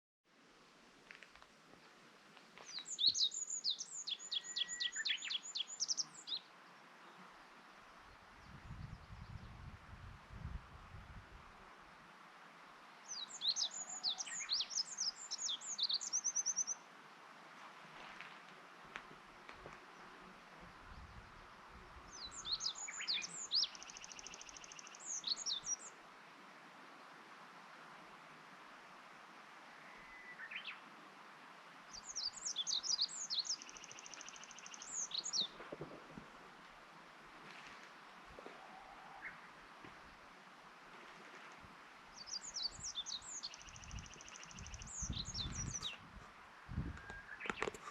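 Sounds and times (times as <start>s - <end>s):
songbird singing: 2.5s - 9.8s, 13.0s - 17.2s, 19.6s - 26.0s, 29.7s - 30.9s, 31.9s - 36.2s, 37.5s - 40.3s, 42.1s - 47.9s.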